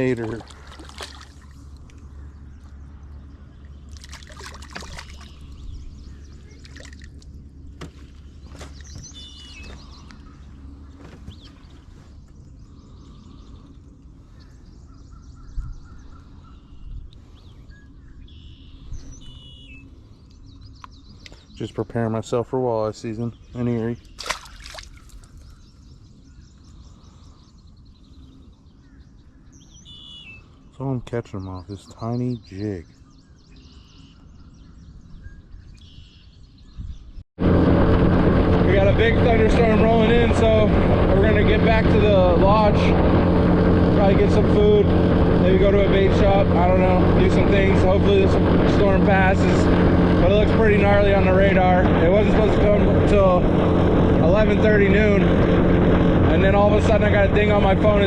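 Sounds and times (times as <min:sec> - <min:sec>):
water splashing and trickling: 0:00.0 - 0:02.1, 0:03.8 - 0:05.6, 0:06.5 - 0:07.4, 0:24.1 - 0:25.5
wind rumble on microphone: 0:00.0 - 0:30.8, 0:32.8 - 0:58.0
steady low hum: 0:00.0 - 0:58.0
faint bird chirps: 0:04.7 - 0:07.2, 0:08.3 - 0:21.8, 0:23.3 - 0:37.2.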